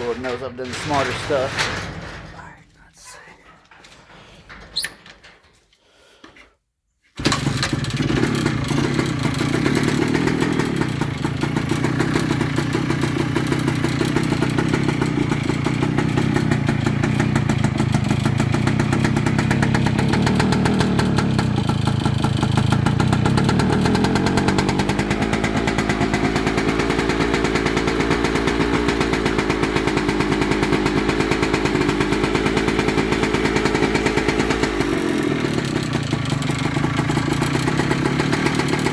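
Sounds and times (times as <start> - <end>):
two-stroke engine starting and running: 0.0 - 1.4, 7.2 - 38.9
engine ticking: 7.2 - 38.9.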